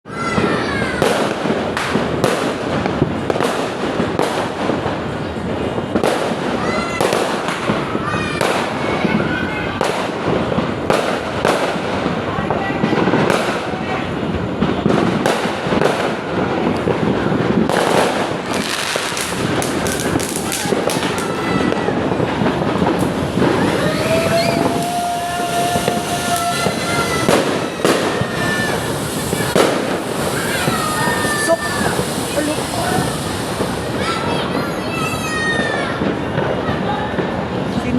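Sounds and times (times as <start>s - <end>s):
fireworks bangs: 0.1s - 37.9s
fireworks crackling: 0.1s - 37.9s.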